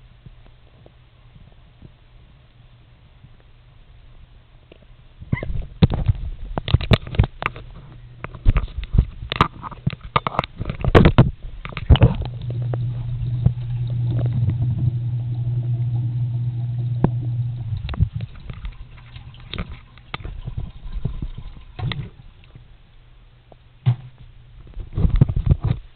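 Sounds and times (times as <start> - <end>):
sharp clicks and knocks: 5.4 - 12.8
microwave oven humming: 11.9 - 20.5.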